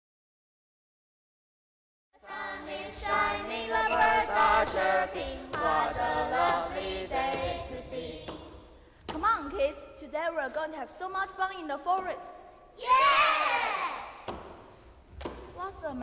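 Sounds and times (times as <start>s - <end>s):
young voices singing together: 2.2s - 8.8s.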